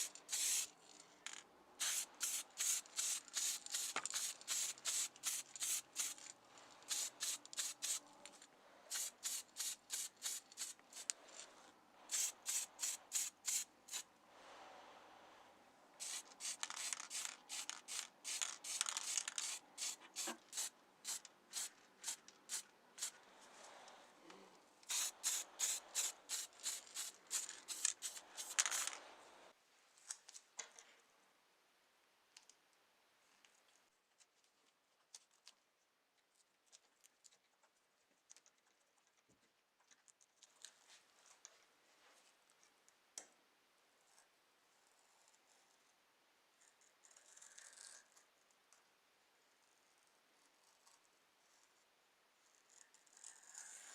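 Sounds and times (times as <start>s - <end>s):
quick rubbing strokes: 24.9s - 29.0s.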